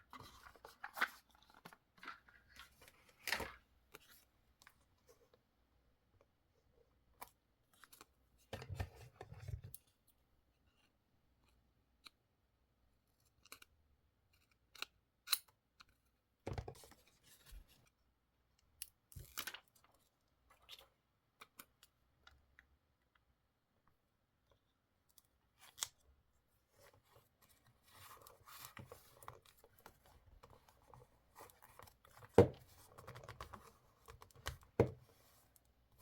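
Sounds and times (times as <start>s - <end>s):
paper rustling: 0.1s - 4.2s.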